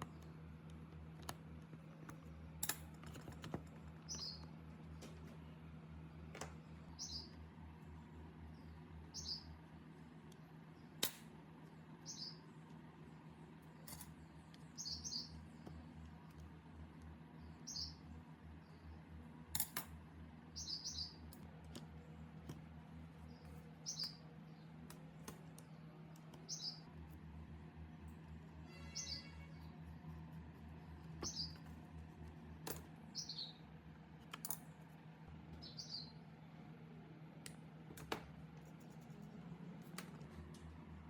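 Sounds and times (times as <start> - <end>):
steady low hum: 0.0 - 41.0
small bird chirping: 3.9 - 4.6, 6.8 - 7.4, 8.4 - 9.7, 12.0 - 12.6, 14.6 - 15.9, 17.4 - 19.0, 20.5 - 21.4, 23.2 - 24.9, 25.7 - 26.9, 28.6 - 32.4, 33.0 - 33.7, 35.5 - 36.3.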